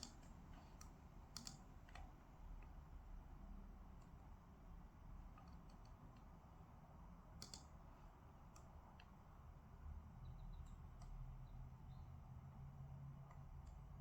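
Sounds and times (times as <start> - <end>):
faint sharp clicks: 0.0 - 2.8, 7.4 - 7.8, 10.6 - 11.2.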